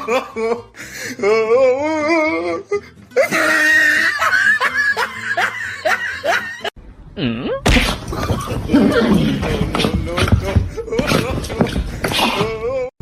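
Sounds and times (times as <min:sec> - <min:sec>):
person laughing hard: 0:00.0 - 0:00.7, 0:03.2 - 0:06.7, 0:07.7 - 0:12.9.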